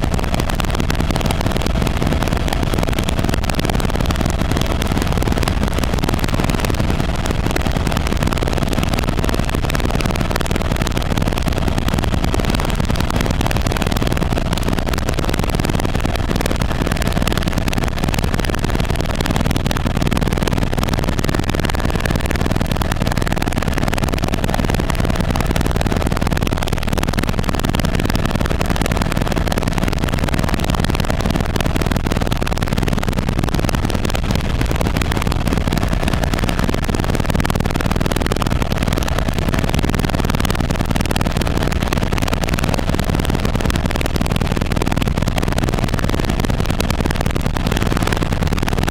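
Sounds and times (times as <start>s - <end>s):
helicopter rotor and engine drone: 0.0s - 32.0s
faint whine: 0.0s - 48.9s.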